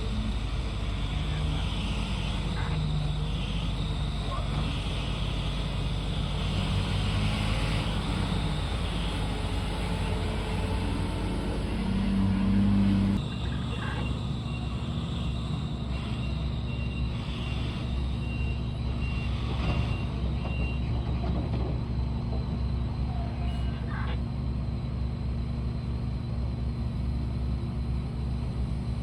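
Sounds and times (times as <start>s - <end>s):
diesel engines droning: 0.0s - 29.0s
back-up alarm beeping: 12.8s - 20.9s.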